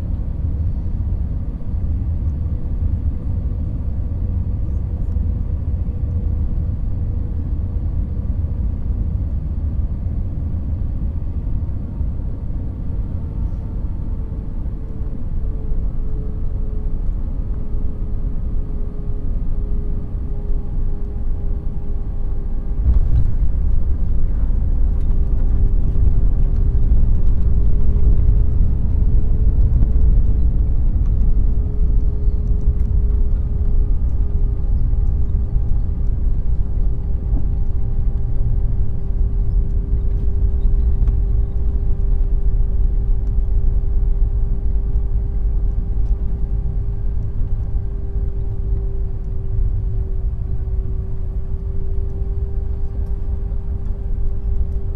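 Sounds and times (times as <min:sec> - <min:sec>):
airframe and wheels rumbling: 0:22.7 - 0:54.9.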